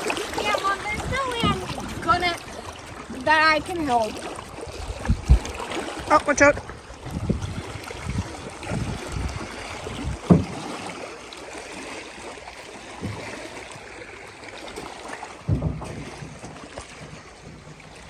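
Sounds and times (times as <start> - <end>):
water slapping against hull: 0.0 - 18.0
wind: 0.0 - 18.0
hard thud: 10.2 - 10.8, 15.4 - 18.0.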